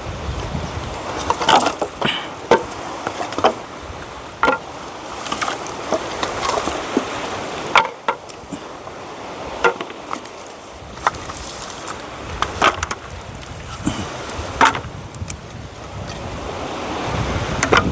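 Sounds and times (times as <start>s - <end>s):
firewood knocking together: 0.4s - 3.6s, 4.4s - 7.1s, 7.7s - 8.4s, 9.6s - 15.4s.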